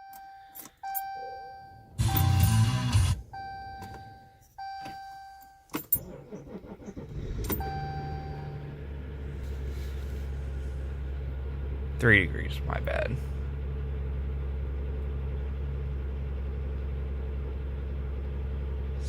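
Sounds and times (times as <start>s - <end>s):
dashboard warning chimes: 0.0s - 6.3s, 7.4s - 8.6s
diesel engine cranking and idling: 0.0s - 19.0s.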